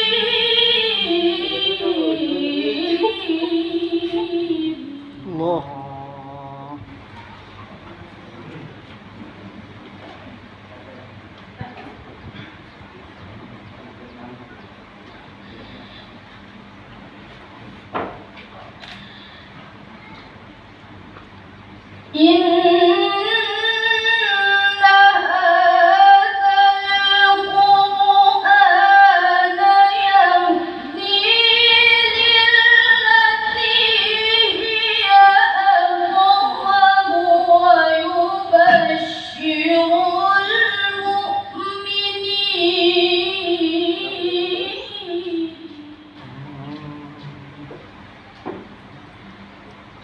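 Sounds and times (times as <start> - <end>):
girl reciting melodically: 0.0 - 5.5, 22.1 - 46.2.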